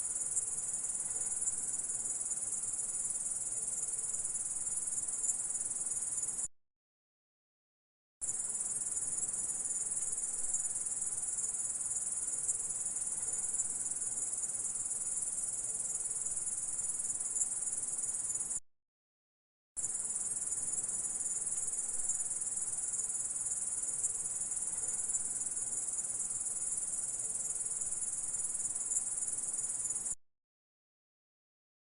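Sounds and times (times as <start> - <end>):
grasshopper buzzing chirr: 19.8 - 30.2.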